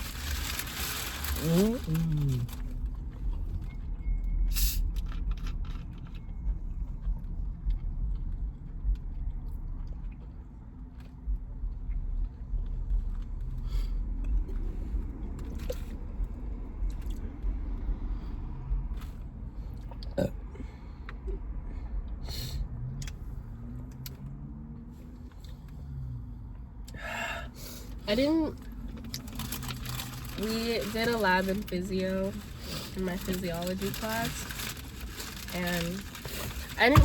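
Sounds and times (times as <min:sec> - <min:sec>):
sandwich being chewed: 0:00.0 - 0:20.2, 0:28.6 - 0:30.4
steady low rumble: 0:00.0 - 0:24.2.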